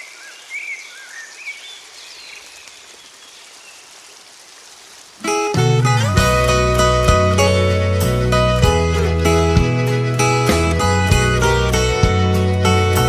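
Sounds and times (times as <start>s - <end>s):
steady rain-like hiss: 0.0s - 13.0s
plucked-string music: 5.2s - 13.0s.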